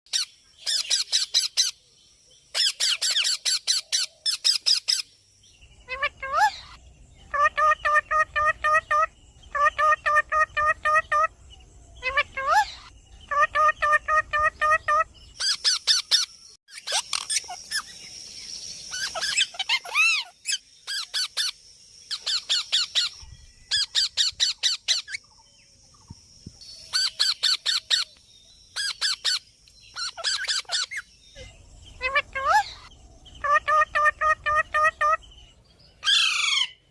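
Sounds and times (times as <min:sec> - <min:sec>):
parrot squawking: 0:05.9 - 0:11.3, 0:12.0 - 0:17.8, 0:18.9 - 0:21.5, 0:30.0 - 0:31.0, 0:32.0 - 0:35.2.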